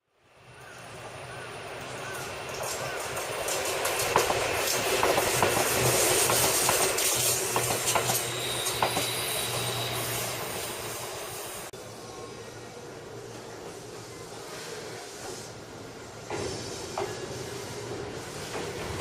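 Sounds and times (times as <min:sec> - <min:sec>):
electric train passing: 0:00.2 - 0:19.0
train wheels clicking over rail joints: 0:02.0 - 0:11.2, 0:15.2 - 0:19.0.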